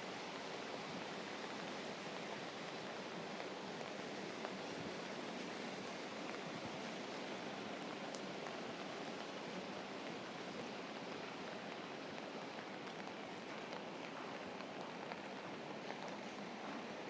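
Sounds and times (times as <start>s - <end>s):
rain on an umbrella: 0.0s - 17.0s
faint ticks: 8.1s - 8.6s.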